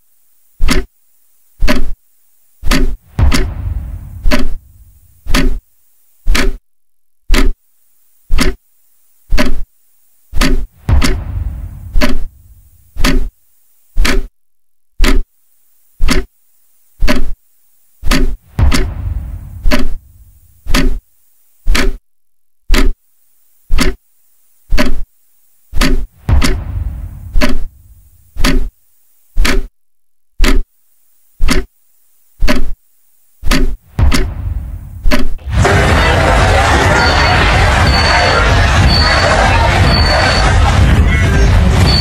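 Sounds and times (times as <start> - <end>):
clock-like ticking: 0.6 - 0.9, 2.7 - 4.6, 5.3 - 5.6, 6.3 - 6.6, 7.3 - 7.6, 8.3 - 8.6, 10.4 - 12.3, 13.0 - 13.3, 14.0 - 14.3, 15.0 - 15.2, 16.0 - 16.3, 18.1 - 20.0, 20.7 - 21.0, 21.7 - 22.0, 22.7 - 23.0, 23.7 - 24.0, 25.8 - 27.7, 28.4 - 28.7, 29.4 - 29.7, 30.4 - 30.6, 31.4 - 31.7, 33.5 - 35.4, 37.0 - 42.0
deep ringing hit: 3.2 - 4.2.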